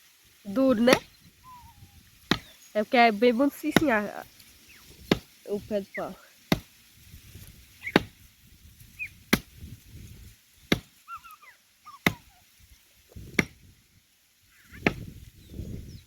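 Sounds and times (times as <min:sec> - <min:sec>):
axe chopping tree trunk: 0:00.8 - 0:01.2, 0:02.2 - 0:02.6, 0:03.6 - 0:04.0, 0:04.9 - 0:05.4, 0:06.4 - 0:06.9, 0:07.8 - 0:08.3, 0:09.2 - 0:09.8, 0:10.6 - 0:11.0, 0:12.0 - 0:12.3, 0:13.2 - 0:13.7, 0:14.8 - 0:15.2.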